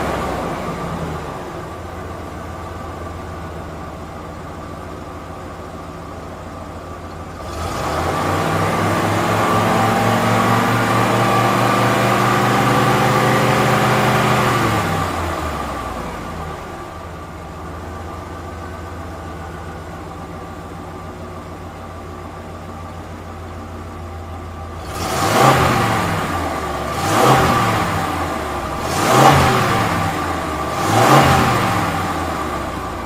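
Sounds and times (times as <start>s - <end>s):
engine revving: 0.0s - 1.9s, 7.3s - 17.2s, 24.7s - 33.0s
vehicle engine humming: 0.0s - 33.0s.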